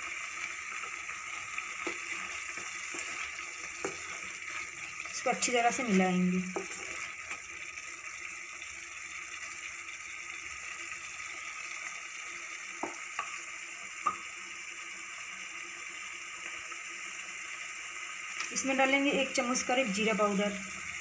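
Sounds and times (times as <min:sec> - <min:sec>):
masala sizzling in oil: 0:00.0 - 0:21.0
spatula tapping a pan: 0:01.7 - 0:04.4, 0:06.4 - 0:07.0, 0:12.8 - 0:13.4.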